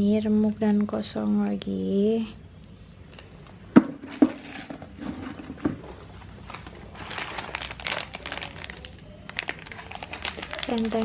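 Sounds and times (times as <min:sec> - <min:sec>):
plastic wrappers crinkling: 0:03.9 - 0:11.0.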